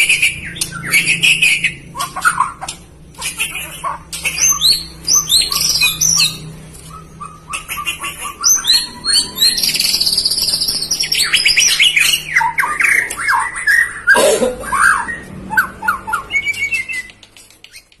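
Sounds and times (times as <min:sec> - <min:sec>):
bird singing whistled song: 0:00.0 - 0:02.5, 0:04.4 - 0:06.4, 0:07.2 - 0:18.0
harsh rasping bird call: 0:03.2 - 0:16.6.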